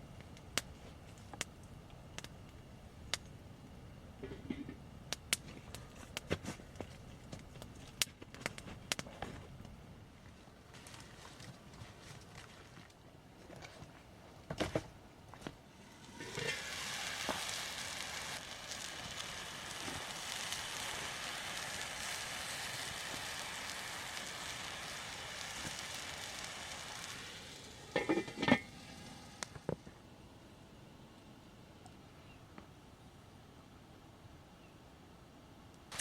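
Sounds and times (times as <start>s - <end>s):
food sizzling in a pan: 15.8s - 29.5s.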